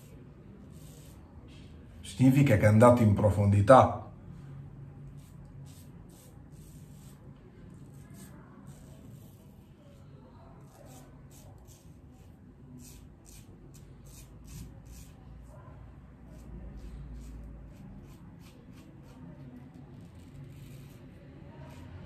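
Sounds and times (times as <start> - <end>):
razor rasping through stubble: 10.6 - 15.2.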